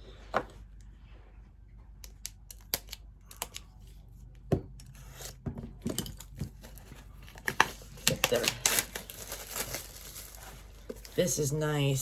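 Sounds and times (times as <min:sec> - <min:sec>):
wrapping crinkling and tearing: 0:06.6 - 0:11.6.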